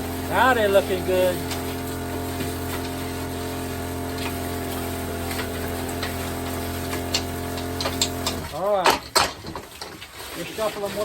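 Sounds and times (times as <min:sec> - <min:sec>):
motor humming: 0:00.0 - 0:08.6.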